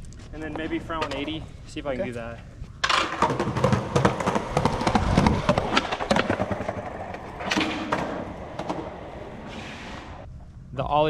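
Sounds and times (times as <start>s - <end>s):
skateboard rolling on concrete: 0.0s - 10.3s
skateboard clattering and landing: 2.8s - 10.3s.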